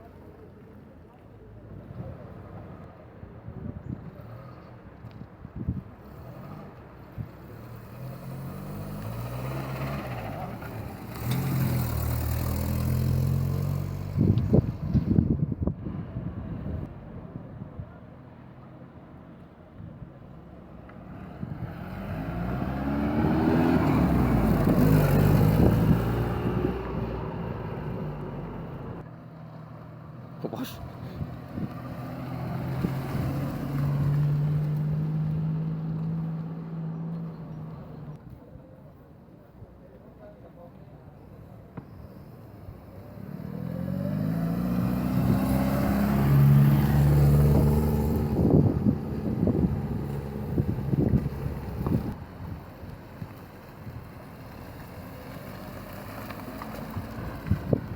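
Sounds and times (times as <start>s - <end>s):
vehicle engine passing by: 6.0s - 18.0s, 20.9s - 38.2s, 42.0s - 57.9s.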